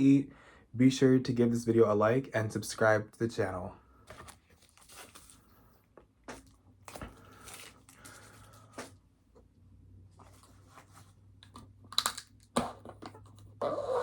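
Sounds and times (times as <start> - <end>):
packaging rustling and crinkling: 4.1 - 5.6, 6.3 - 9.0.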